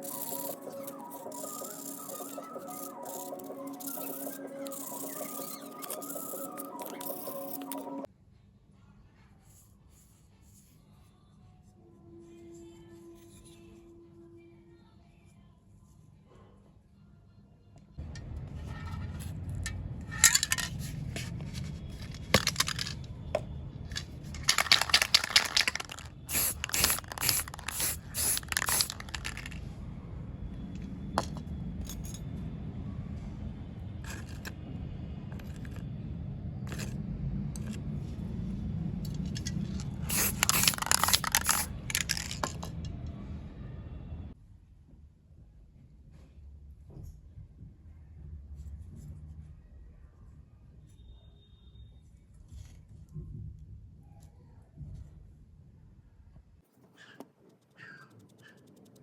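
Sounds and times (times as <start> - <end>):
small metal parts scraping and clinking: 0.0 - 8.1, 18.1 - 29.6, 31.2 - 32.3, 34.0 - 34.6, 35.3 - 35.9, 36.7 - 37.0, 39.0 - 43.0.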